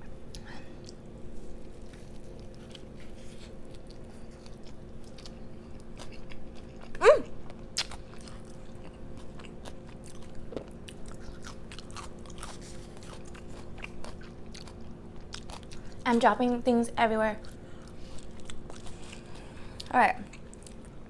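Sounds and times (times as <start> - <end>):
chewing and crunching: 0.0 - 16.5, 17.4 - 21.0
low electrical hum: 0.0 - 21.0
wet mouth clicks: 7.8 - 8.0.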